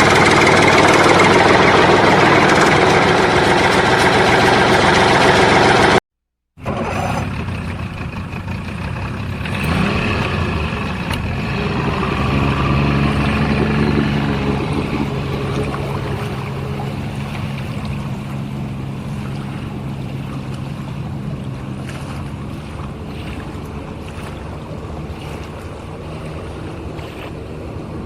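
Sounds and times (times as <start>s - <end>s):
engine running steadily: 0.0s - 6.0s, 6.6s - 28.0s.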